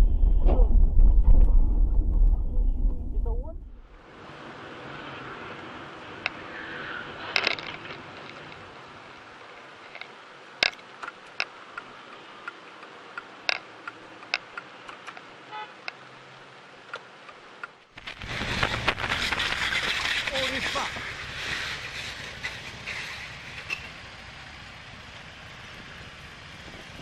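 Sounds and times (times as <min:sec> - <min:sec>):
traffic noise: 0:03.3 - 0:27.0
sharp clicks and knocks: 0:07.4 - 0:08.7, 0:09.5 - 0:11.9, 0:12.5 - 0:16.0.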